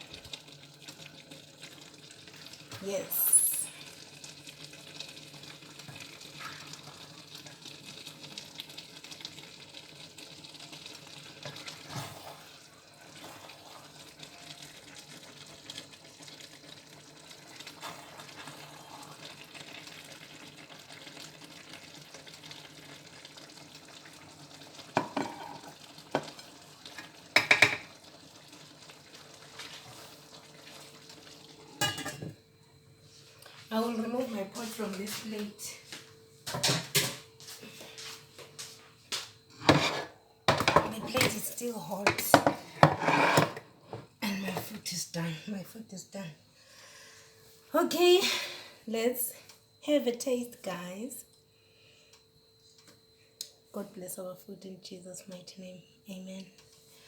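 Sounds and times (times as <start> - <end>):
faint sizzle from pot: 0.0 - 57.0
spoon knocking on pot: 25.0 - 25.6, 27.4 - 27.9
spoon scraping a pot: 25.0 - 25.8, 39.5 - 40.9, 42.4 - 44.0.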